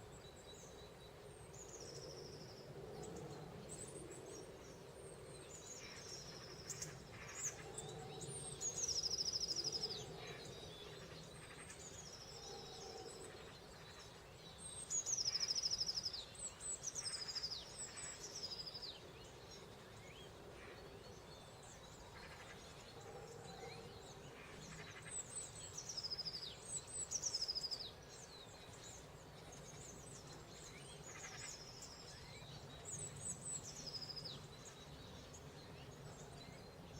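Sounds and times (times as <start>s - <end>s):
songbird singing trills: 0.0s - 36.9s.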